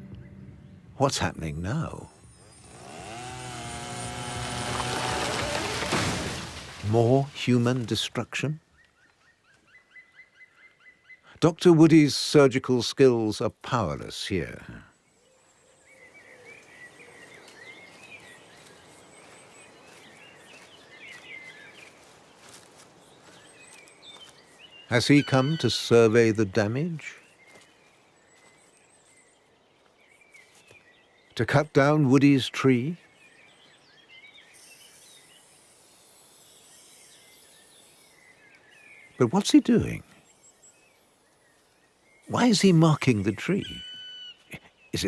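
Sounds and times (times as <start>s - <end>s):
small birds chirping: 14.3s - 45.0s
steady background hiss: 33.6s - 44.1s.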